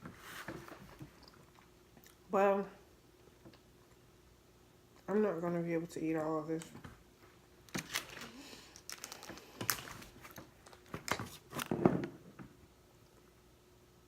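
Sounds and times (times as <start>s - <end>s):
seafood clicks and crinkles: 7.7s - 11.2s.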